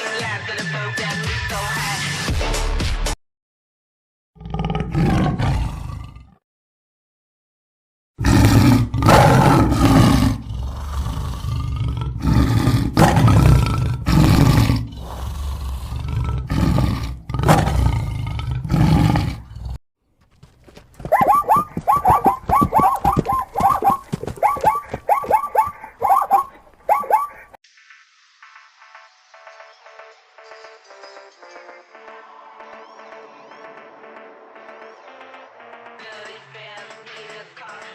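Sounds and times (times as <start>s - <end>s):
tiger roaring: 4.4s - 6.4s, 8.2s - 19.8s, 21.1s - 27.3s
animal short pitched calls: 21.1s - 27.5s.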